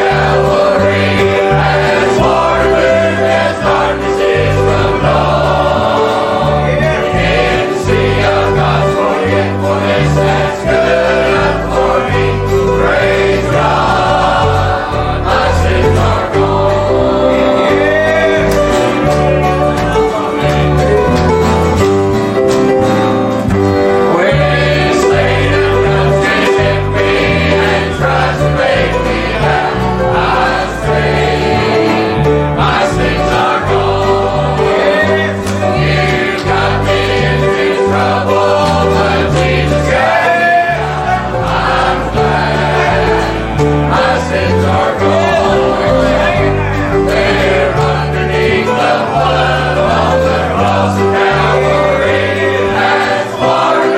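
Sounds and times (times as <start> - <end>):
choir singing a hymn: 0.0 - 53.9
instrumental accompaniment: 0.0 - 53.9.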